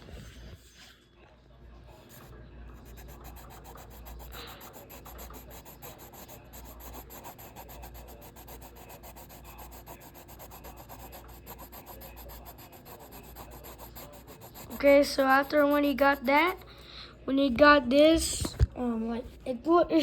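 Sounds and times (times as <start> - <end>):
colouring tool rubbing on paper: 2.1 - 16.6.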